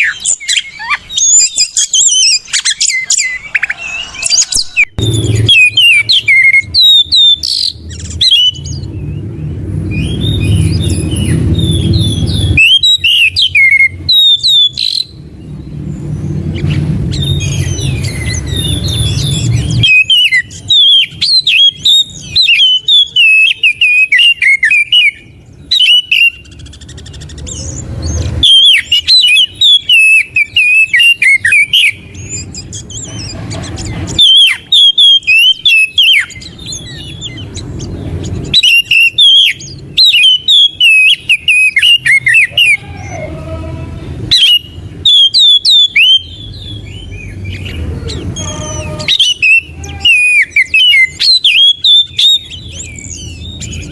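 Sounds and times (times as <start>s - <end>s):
bird singing whistled phrases: 0.0s - 9.2s, 9.9s - 15.2s, 16.6s - 33.1s, 34.1s - 43.4s, 44.3s - 53.9s
low rumble: 3.7s - 6.4s.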